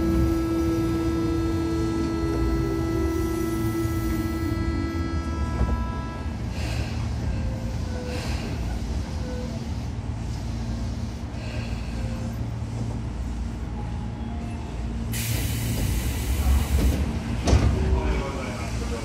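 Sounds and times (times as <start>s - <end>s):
train running rumble: 0.0s - 19.0s
compressed air hiss: 15.1s - 17.0s.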